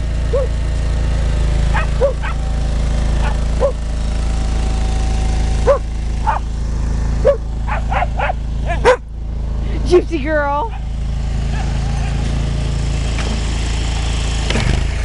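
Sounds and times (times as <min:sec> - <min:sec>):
dogs barking and yipping: 0:00.3 - 0:00.6, 0:01.7 - 0:02.5, 0:03.2 - 0:03.9, 0:05.6 - 0:06.5, 0:07.2 - 0:09.1, 0:10.7 - 0:12.4.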